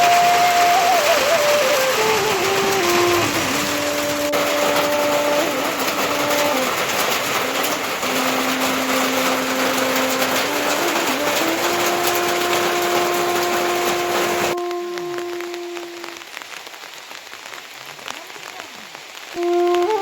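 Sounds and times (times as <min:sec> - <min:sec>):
slow melody of held notes: 0:00.0 - 0:16.4, 0:19.4 - 0:20.0
heavy rain falling: 0:00.0 - 0:20.0.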